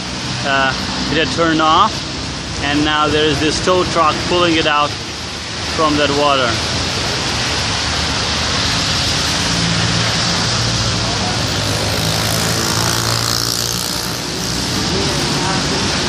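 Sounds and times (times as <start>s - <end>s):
traffic hissing on flooded road: 0.0s - 16.0s
vehicle engine humming: 6.5s - 16.0s.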